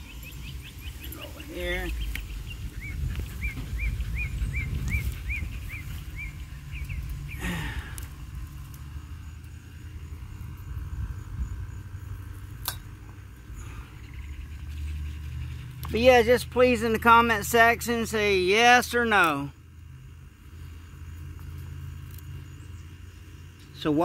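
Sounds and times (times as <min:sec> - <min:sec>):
bird chirping: 0:00.0 - 0:08.3, 0:09.0 - 0:19.6, 0:22.2 - 0:24.0
low rumble: 0:00.0 - 0:15.8.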